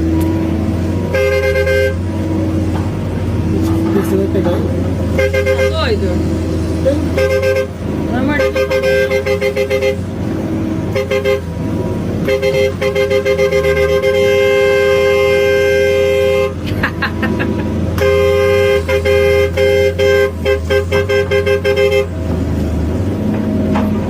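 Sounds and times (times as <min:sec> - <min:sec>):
large engine droning: 0:00.0 - 0:24.0
two-note vehicle horn honking: 0:01.1 - 0:02.2, 0:05.1 - 0:06.0, 0:07.0 - 0:10.1, 0:10.9 - 0:11.5, 0:12.2 - 0:16.6, 0:18.0 - 0:22.2.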